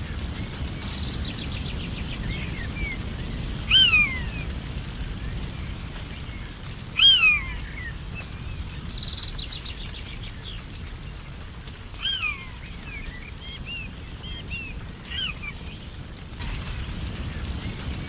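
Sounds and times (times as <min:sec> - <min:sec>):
forest birds calling: 0:00.0 - 0:16.2
low steady rumble: 0:00.0 - 0:18.0.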